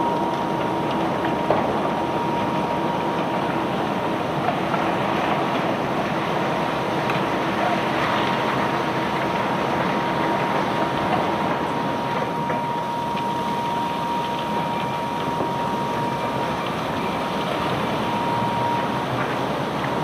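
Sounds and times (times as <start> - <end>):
heavy machinery whining: 11.4 - 20.0.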